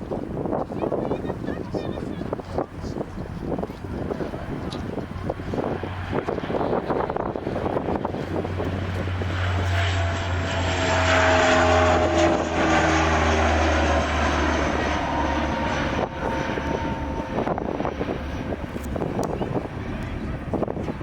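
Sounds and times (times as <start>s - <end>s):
aircraft flying low past: 0.0s - 21.0s
steady low rumble: 0.2s - 21.0s.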